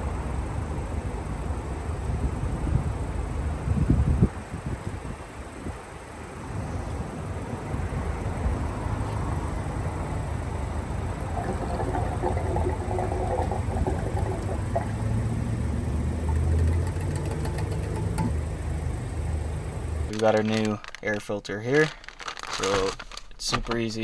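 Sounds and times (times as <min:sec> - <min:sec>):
car engine low drone: 0:13.5 - 0:20.1.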